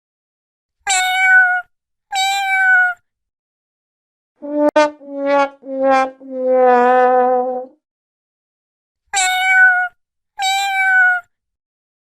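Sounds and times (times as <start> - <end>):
cats meowing: 9.2 - 11.2.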